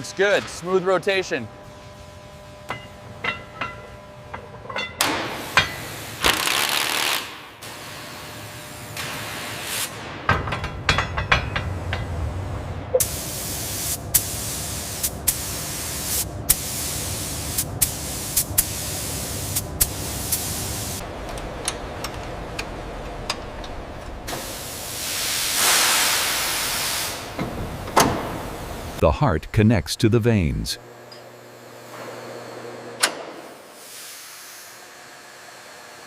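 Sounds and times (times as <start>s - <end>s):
spray hissing: 13.0s - 21.0s, 24.3s - 27.4s.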